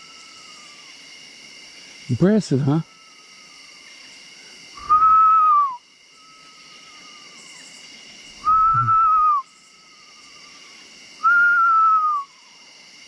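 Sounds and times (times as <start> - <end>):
insects trilling: 0.0 - 13.0
man whistling a bird call: 4.8 - 6.4, 8.4 - 9.5, 11.2 - 12.4
bird calling: 4.8 - 12.5.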